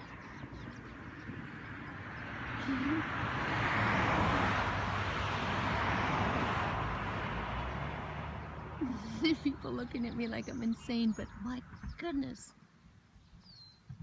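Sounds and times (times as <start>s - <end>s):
car driving past: 0.0s - 9.8s.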